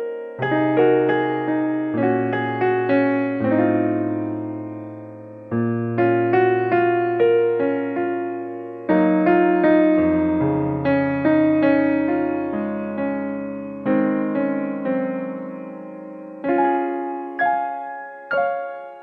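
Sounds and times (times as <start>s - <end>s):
gentle electric piano music: 0.0s - 19.0s.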